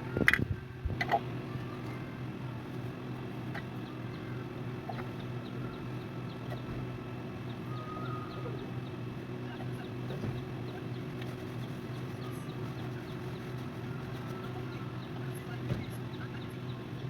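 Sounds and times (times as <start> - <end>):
low mechanical hum: 0.0 - 17.0
faint high chirps: 7.5 - 9.0.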